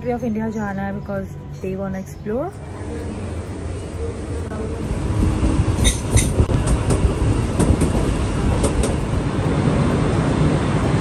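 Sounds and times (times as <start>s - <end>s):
train wheels rumbling on rails: 0.0s - 11.0s
wheels clacking over rail joints: 5.1s - 11.0s.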